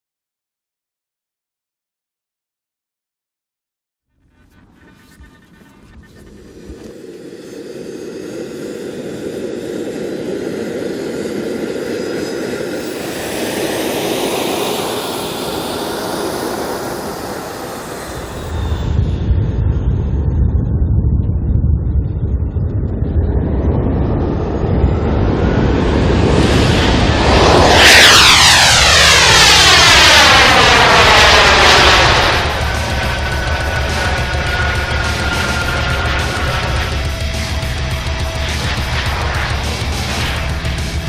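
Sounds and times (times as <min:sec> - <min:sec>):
jet engines roaring: 0:04.2 - 0:41.0
deep rumble: 0:17.6 - 0:41.0.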